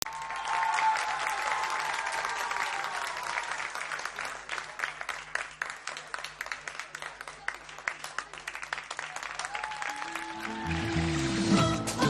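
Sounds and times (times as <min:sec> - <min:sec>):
high cheer: 0:00.0 - 0:03.9, 0:09.1 - 0:12.0
audience applauding: 0:00.0 - 0:12.0.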